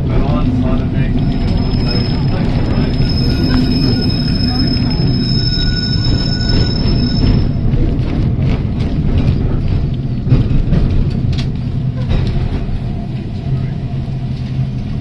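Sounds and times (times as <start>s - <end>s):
tram wheels squealing: 0.0s - 10.1s
electric tram rumbling on rails: 0.0s - 15.0s.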